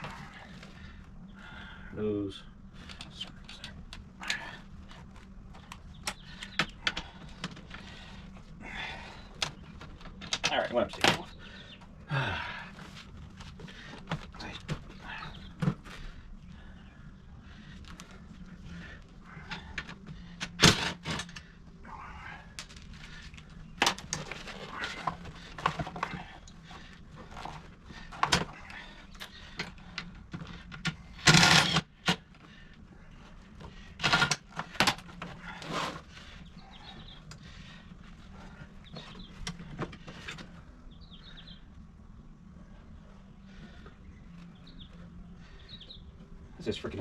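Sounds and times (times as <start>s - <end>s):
steady low hum: 0.0s - 47.0s
hand tools clicking and clanking: 22.5s - 32.5s.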